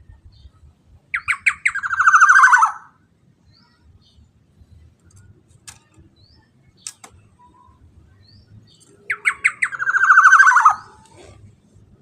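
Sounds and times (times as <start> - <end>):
bird harsh pulsing call: 1.2 - 2.9, 9.1 - 11.0
oriole chirps: 6.3 - 11.4.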